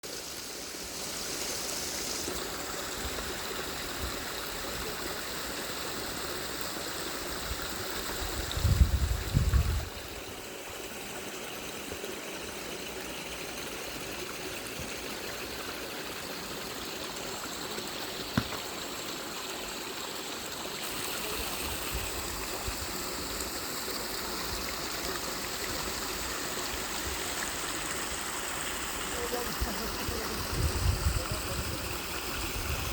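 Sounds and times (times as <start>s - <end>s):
waterfall rushing: 20.8s - 32.9s.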